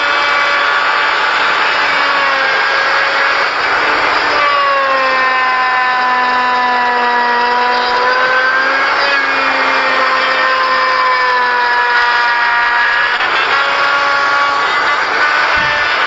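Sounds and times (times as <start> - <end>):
power tool motor cutting wood: 0.0 - 16.0.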